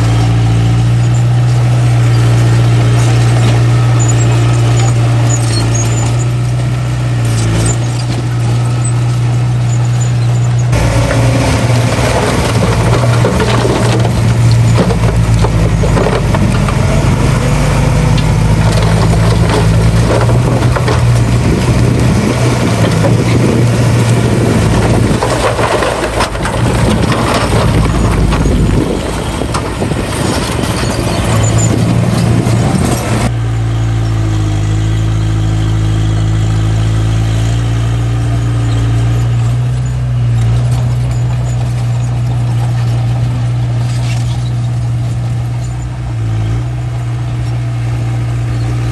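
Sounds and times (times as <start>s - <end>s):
machine clattering and grinding: 0.0s - 33.3s, 38.3s - 48.9s
diesel engine running: 0.0s - 48.9s.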